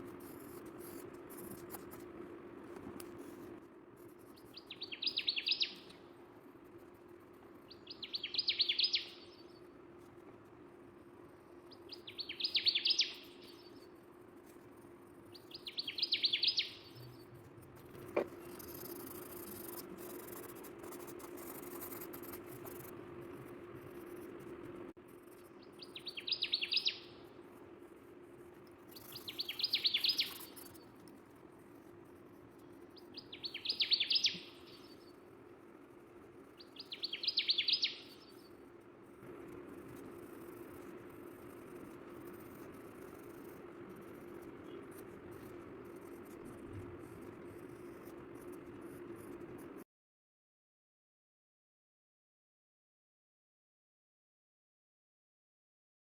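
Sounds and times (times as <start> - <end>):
steady low hum: 0.0 - 33.8, 34.4 - 49.8
bird chirping trill: 4.4 - 6.0, 7.7 - 9.6, 11.7 - 13.9, 15.3 - 17.3, 25.6 - 27.2, 28.9 - 30.8, 33.0 - 35.2, 36.6 - 38.5.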